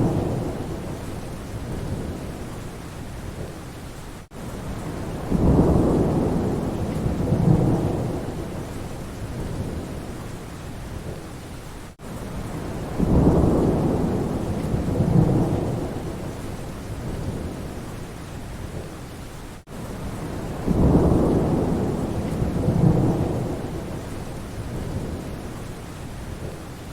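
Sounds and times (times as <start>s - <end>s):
thunder rumbling: 0.0s - 3.6s, 4.7s - 10.2s, 12.4s - 17.9s, 20.0s - 25.7s
steady rain: 0.0s - 26.9s.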